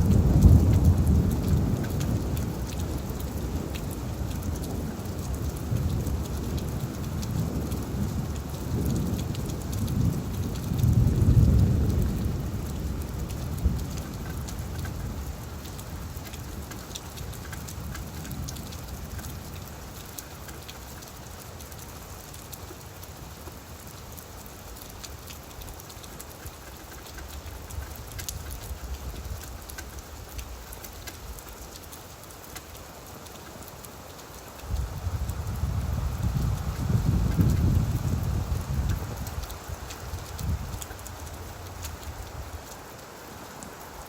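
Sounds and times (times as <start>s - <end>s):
low thunder rumble: 0.0s - 16.6s, 34.7s - 42.6s
rain falling on leaves: 0.0s - 44.0s.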